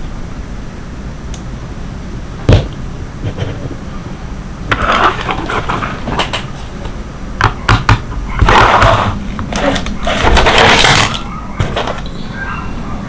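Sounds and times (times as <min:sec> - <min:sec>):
plastic packaging crinkling: 0:08.4 - 0:12.2
plastic packaging clicks: 0:08.5 - 0:12.2.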